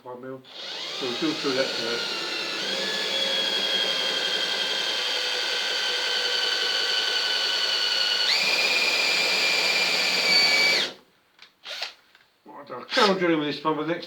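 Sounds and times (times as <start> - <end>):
electric drill whining: 0.5 - 11.0, 11.6 - 12.0, 12.9 - 13.1.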